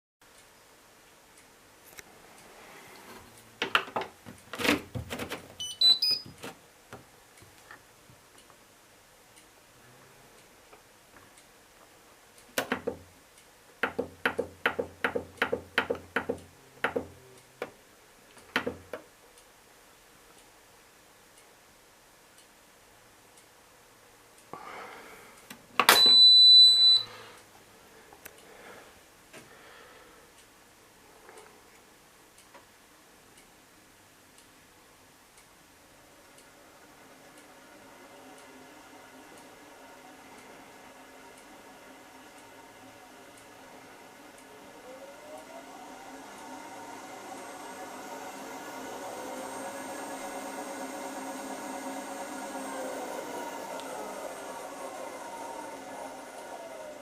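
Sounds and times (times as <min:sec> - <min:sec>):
short electronic beeps rising: 0:05.6 - 0:06.3, 0:26.0 - 0:27.1.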